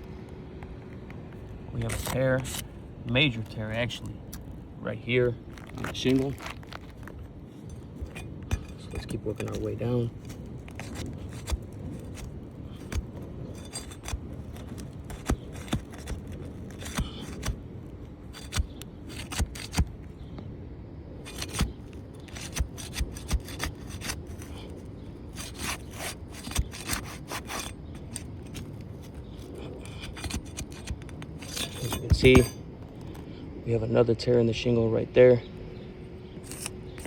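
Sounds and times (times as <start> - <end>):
shingle clicking and tearing: 5.4 - 20.1, 21.2 - 33.2, 36.4 - 37.0
tool scraping roof shingle: 5.5 - 20.0, 21.2 - 33.3, 36.4 - 37.0.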